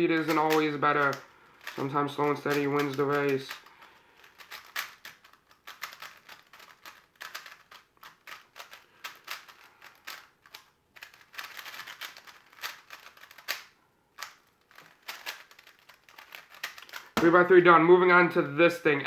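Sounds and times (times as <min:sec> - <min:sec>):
puzzle cube plastic clicking: 0:00.2 - 0:17.4.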